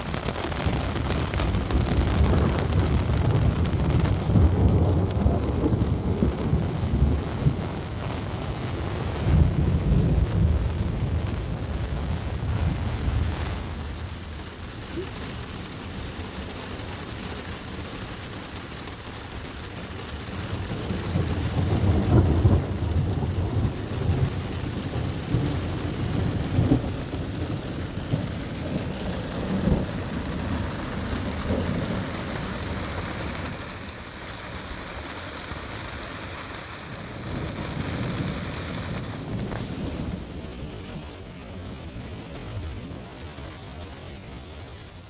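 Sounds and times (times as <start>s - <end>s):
steady rain falling: 0.0s - 45.0s
thunder rumbling: 0.0s - 45.0s.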